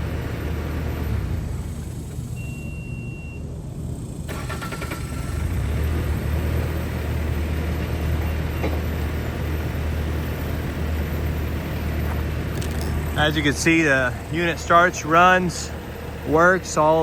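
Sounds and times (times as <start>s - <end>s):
diesel engine cranking and running: 0.0s - 17.0s
short beep: 2.4s - 3.4s.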